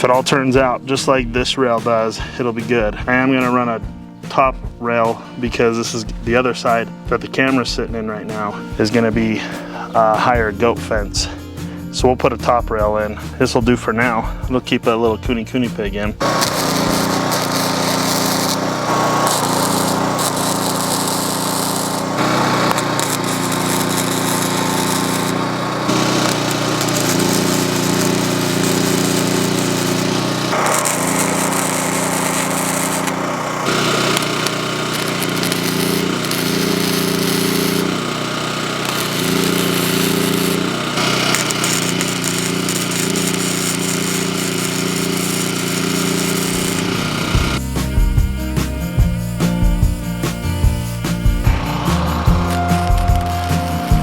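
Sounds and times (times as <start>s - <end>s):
welding arc crackling: 16.2s - 54.0s.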